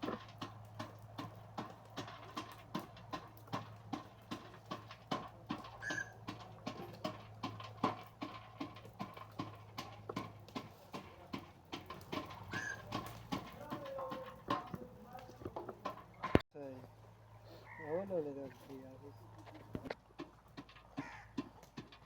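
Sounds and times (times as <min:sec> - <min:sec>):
sharp knocks: 0:00.0 - 0:16.4.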